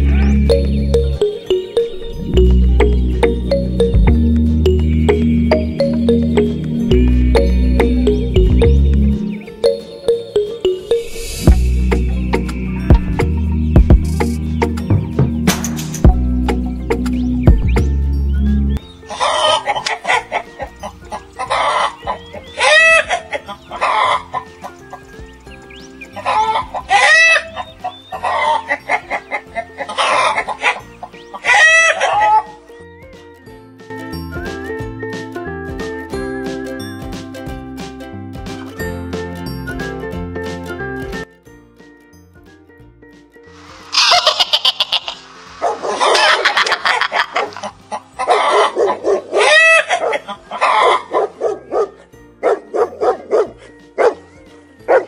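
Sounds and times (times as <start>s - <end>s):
light background music: 0.0s - 55.0s
chickens clucking: 12.0s - 15.8s, 19.0s - 32.7s, 43.6s - 51.5s
dog barking: 31.9s - 32.6s, 45.6s - 46.4s, 47.2s - 47.6s, 48.2s - 55.0s.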